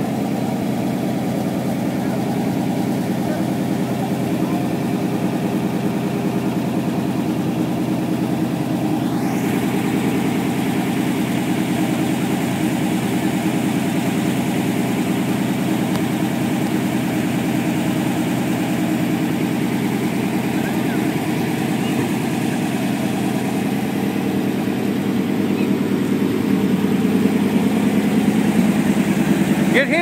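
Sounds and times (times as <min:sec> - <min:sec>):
fire engine idling: 0:00.0 - 0:30.0.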